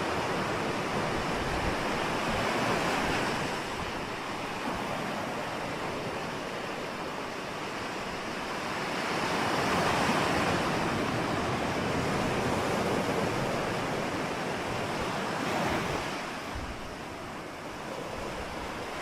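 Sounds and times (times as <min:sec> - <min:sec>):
ocean waves breaking on shore: 0:00.0 - 0:19.0.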